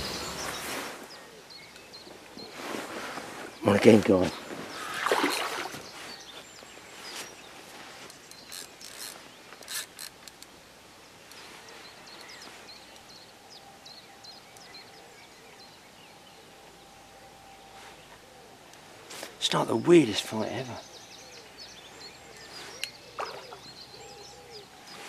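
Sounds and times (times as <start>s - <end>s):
quiet lakeside outdoor noise: 0.0s - 25.0s
small birds chirping: 0.0s - 25.0s
fishing reel clicks and rattles: 8.5s - 10.4s.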